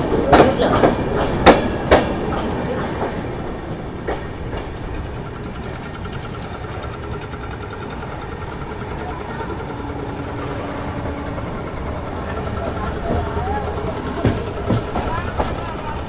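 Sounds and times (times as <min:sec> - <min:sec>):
passing train wheel clacks: 0:00.0 - 0:16.0
train wheels rumbling on rail: 0:00.0 - 0:16.0.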